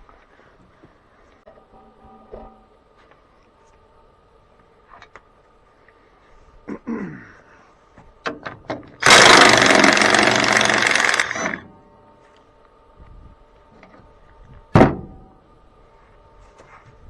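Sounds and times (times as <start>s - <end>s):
impact wrench hammering: 9.0s - 11.6s.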